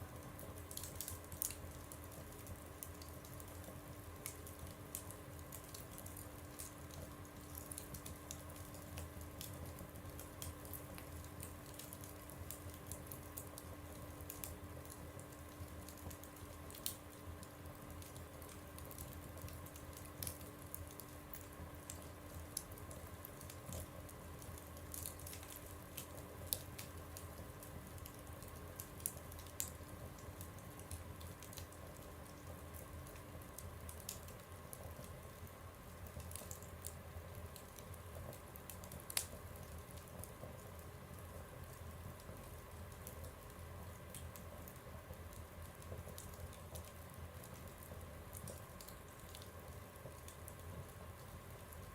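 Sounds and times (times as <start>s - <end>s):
faint steady hum: 0.0s - 51.9s
wood fire crackling: 0.0s - 51.9s.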